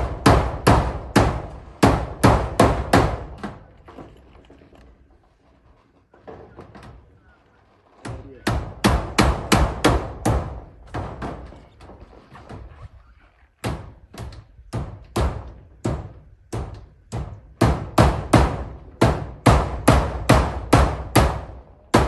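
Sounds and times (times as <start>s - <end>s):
hammer striking metal roofing: 0.0s - 4.4s, 7.9s - 12.7s, 13.6s - 22.0s.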